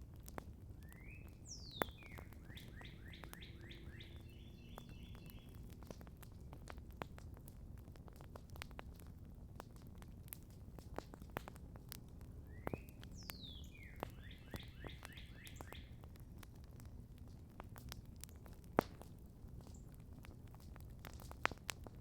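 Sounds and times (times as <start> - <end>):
campfire crackling and popping: 0.0 - 22.0
songbird singing: 0.8 - 5.7, 12.4 - 16.1.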